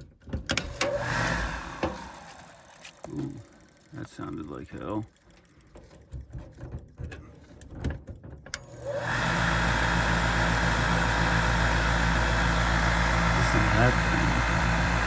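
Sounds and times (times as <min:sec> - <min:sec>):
furnace inducer motor humming: 0:00.7 - 0:04.9, 0:08.6 - 0:15.0.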